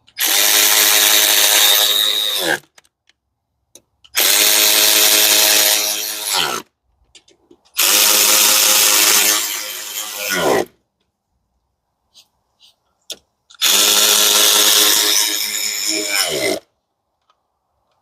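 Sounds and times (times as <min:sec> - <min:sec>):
electric drill running: 0:00.2 - 0:02.6, 0:04.2 - 0:06.4, 0:13.6 - 0:16.5.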